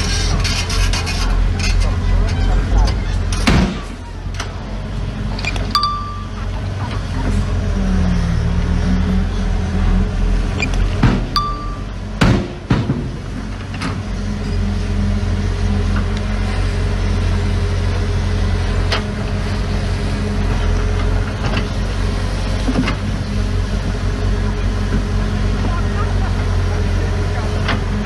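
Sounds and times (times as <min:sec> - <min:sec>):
heavy diesel engine running: 0:00.0 - 0:28.0
sharp metallic knocks: 0:11.0 - 0:13.3.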